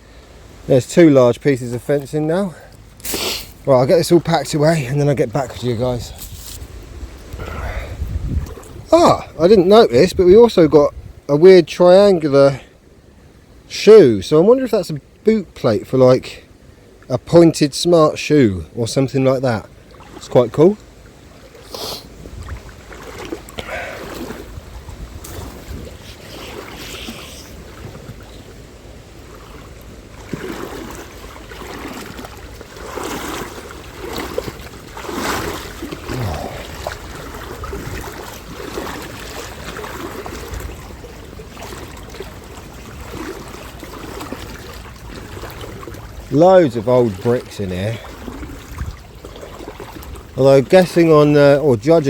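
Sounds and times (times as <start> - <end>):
water sloshing from wading: 0.0 - 13.7, 18.7 - 52.0
wind on microphone: 5.8 - 11.3, 22.1 - 28.4, 34.4 - 41.5, 48.2 - 49.1.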